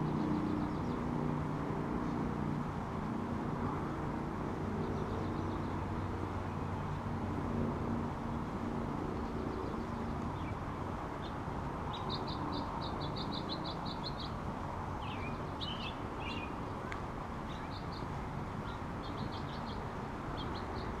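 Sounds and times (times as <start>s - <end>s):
small birds chirping: 0.0s - 1.2s, 4.7s - 7.0s, 9.1s - 10.6s, 11.2s - 21.0s.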